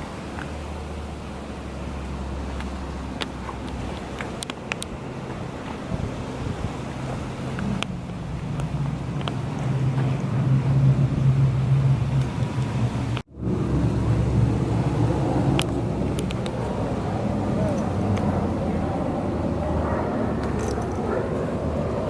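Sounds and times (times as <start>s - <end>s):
car engine running: 0.9s - 22.0s.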